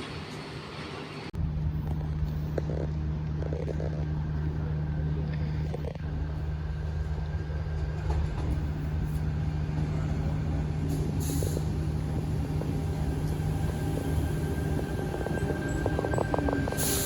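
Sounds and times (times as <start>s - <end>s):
train equipment humming: 0.0s - 17.0s
air hiss: 10.9s - 11.7s.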